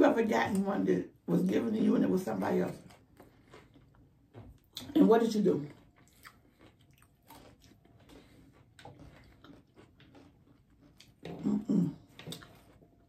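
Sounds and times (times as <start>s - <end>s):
person chewing: 2.7s - 13.0s.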